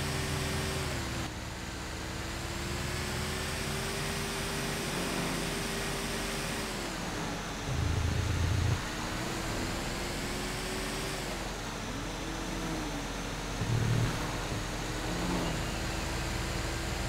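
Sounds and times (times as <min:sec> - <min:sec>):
truck engine running: 0:06.9 - 0:17.0.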